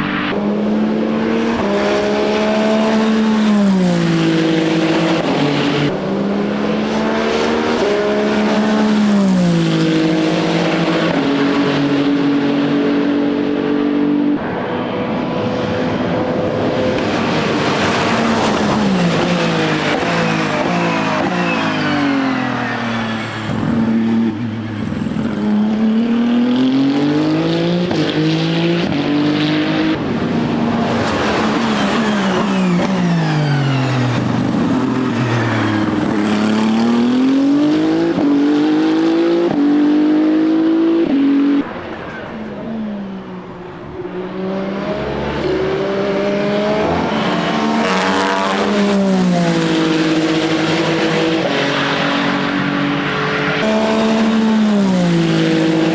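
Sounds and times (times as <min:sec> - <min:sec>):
racing car engine shifting gears: 0:00.0 - 0:55.9.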